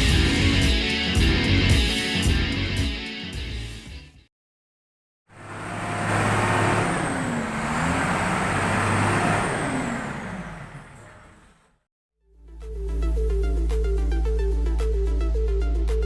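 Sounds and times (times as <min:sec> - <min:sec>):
truck engine running: 0:05.3 - 0:11.8.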